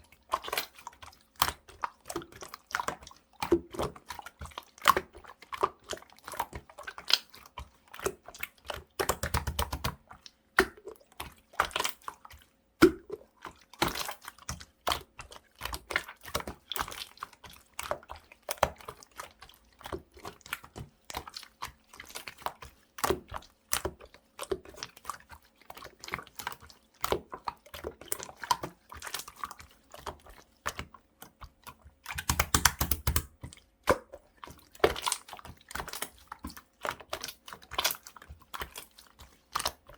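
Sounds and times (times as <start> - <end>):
slime squelching: 0.0 - 39.9
slime clicking and popping: 32.1 - 34.1.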